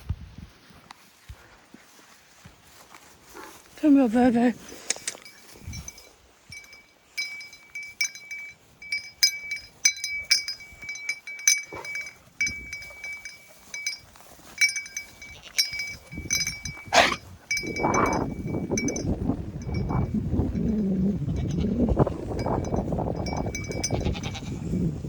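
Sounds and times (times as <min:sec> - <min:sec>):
collar tags clinking: 0:04.0 - 0:24.5
dog chewing and snuffling: 0:10.4 - 0:19.0
dog whining: 0:16.9 - 0:17.2.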